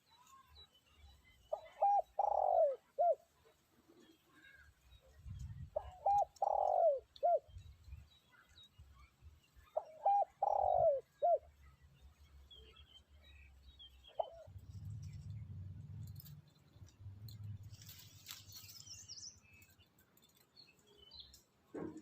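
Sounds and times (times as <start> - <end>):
dove cooing: 1.5 - 3.3, 5.6 - 7.6, 9.8 - 11.5, 14.1 - 15.3.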